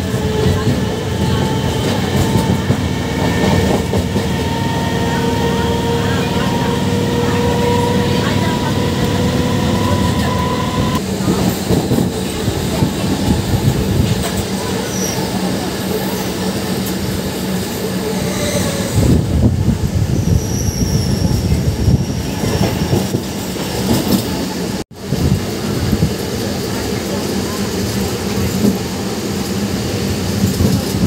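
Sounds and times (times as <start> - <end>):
train wheels rumbling on rails: 0.0 - 31.0
high wheel squeals: 17.9 - 19.2, 20.1 - 23.5.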